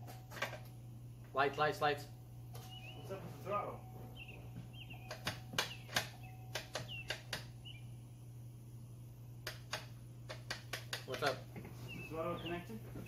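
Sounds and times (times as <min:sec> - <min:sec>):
faint low steady hum: 0:00.0 - 0:10.7
small birds chirping: 0:02.6 - 0:08.3, 0:10.7 - 0:13.0
sharp clicks and taps: 0:05.0 - 0:07.5, 0:09.4 - 0:11.7.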